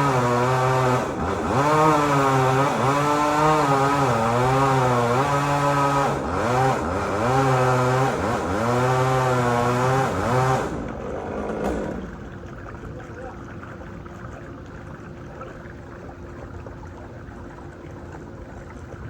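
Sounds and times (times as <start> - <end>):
chainsaw running at high revs: 0.0 - 12.0.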